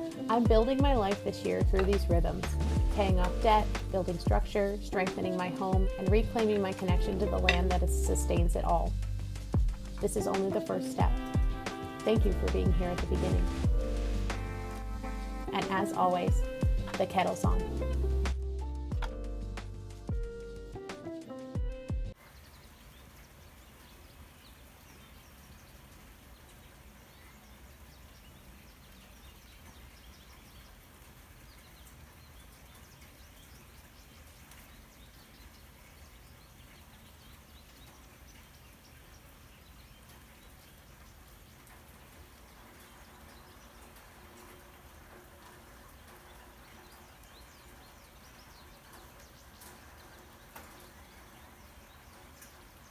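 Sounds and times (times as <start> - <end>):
steady hiss: 13.2 - 18.4.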